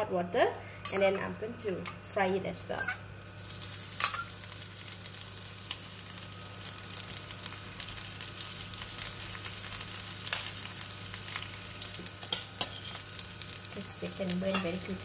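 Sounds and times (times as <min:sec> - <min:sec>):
food sizzling in a wok: 0:03.0 - 0:15.0.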